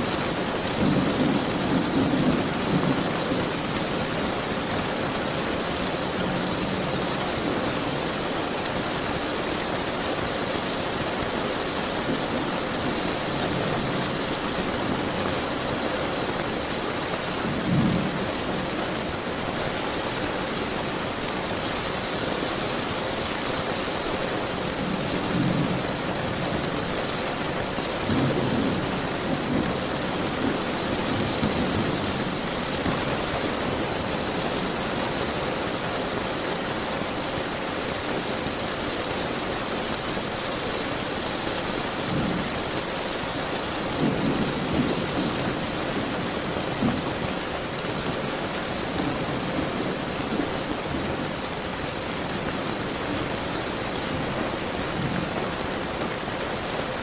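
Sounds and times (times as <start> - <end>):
heavy rain falling: 0.0 - 57.0
thunder rumbling: 0.3 - 7.6.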